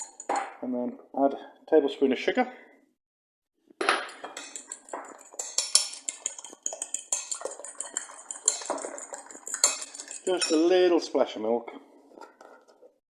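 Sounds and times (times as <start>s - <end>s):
utensil clinking against bowl: 0.0s - 0.6s, 3.9s - 10.8s.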